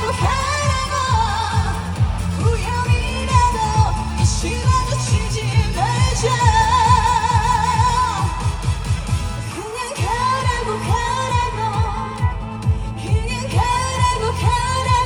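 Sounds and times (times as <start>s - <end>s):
band backing track: 0.0s - 15.0s
woman singing: 0.0s - 15.0s.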